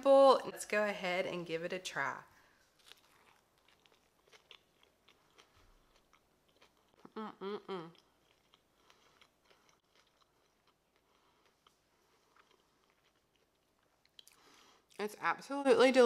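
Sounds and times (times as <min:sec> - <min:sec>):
person humming mmm: 0:07.1 - 0:08.1.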